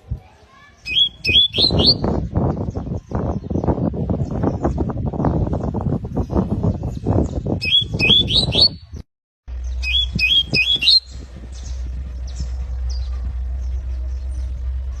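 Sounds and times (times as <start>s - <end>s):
canary singing: 0.8s - 5.4s, 6.2s - 14.9s
steady low hum: 9.5s - 15.0s.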